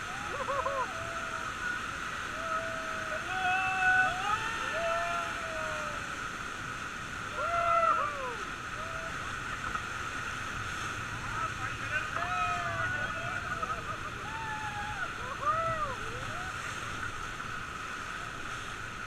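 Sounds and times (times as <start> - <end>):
people whooping: 0.0 - 6.2, 7.3 - 9.2, 12.2 - 16.7
river water rushing: 0.0 - 19.0.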